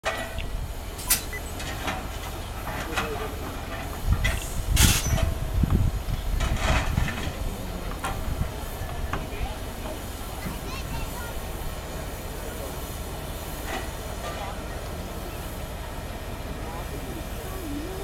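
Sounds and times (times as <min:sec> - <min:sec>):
locomotive low rumble: 0:00.0 - 0:18.0
steam hissing: 0:00.2 - 0:18.0
clanks and knocks: 0:01.0 - 0:09.3.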